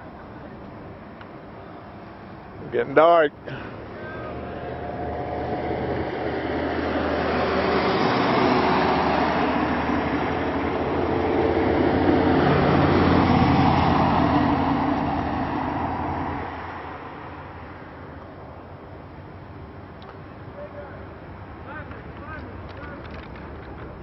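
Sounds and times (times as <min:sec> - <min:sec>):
road noise: 0:00.0 - 0:24.0
vehicle engine: 0:00.0 - 0:24.0.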